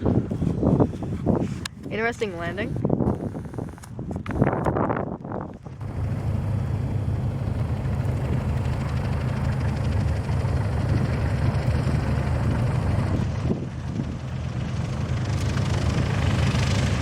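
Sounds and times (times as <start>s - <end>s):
propeller aircraft engine drone: 0.0s - 17.0s.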